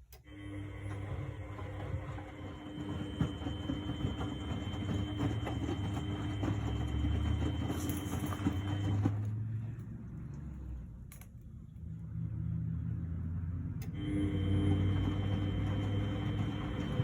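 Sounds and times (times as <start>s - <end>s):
washing machine motor hum: 0.0s - 11.0s, 12.0s - 17.0s
laundry knocking and sloshing: 1.1s - 9.5s.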